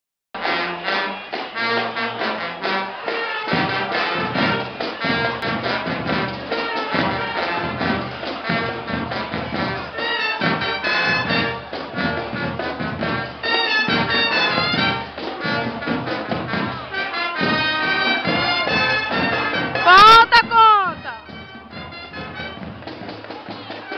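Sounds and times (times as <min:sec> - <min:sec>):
brass band music: 0:00.4 - 0:23.9
steady beat: 0:19.8 - 0:21.6.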